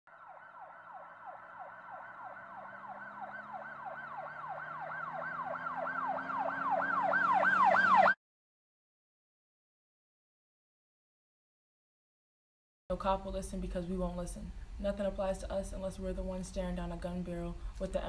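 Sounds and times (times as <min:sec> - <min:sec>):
emergency siren wailing: 0:00.1 - 0:08.2.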